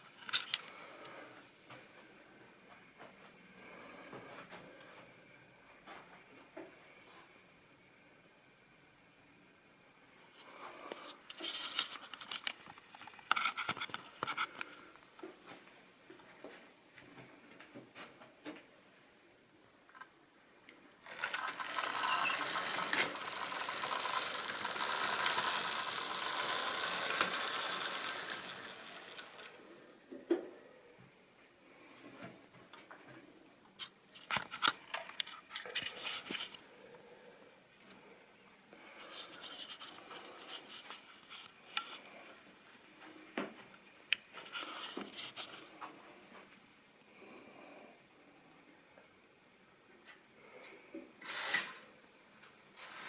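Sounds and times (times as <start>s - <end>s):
model train clattering on track: 21.1s - 29.5s.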